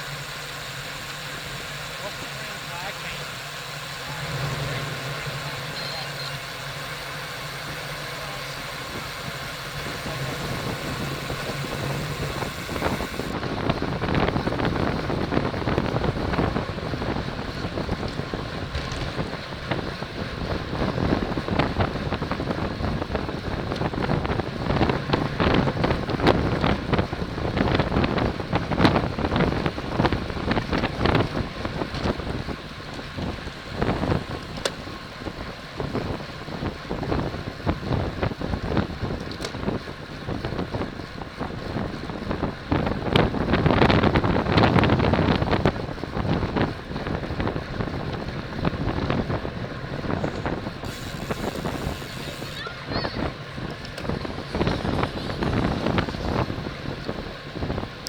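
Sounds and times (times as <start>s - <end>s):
low hum: 0.0s - 38.7s
wind buffeting microphone: 0.0s - 58.0s.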